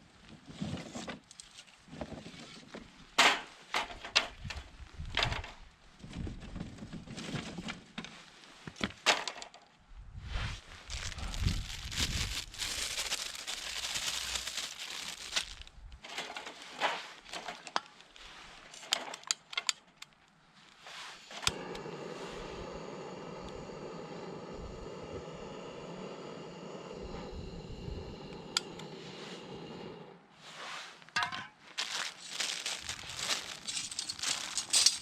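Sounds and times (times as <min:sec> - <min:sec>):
crinkling handling sounds: 0:10.6 - 0:21.5, 0:31.0 - 0:35.0.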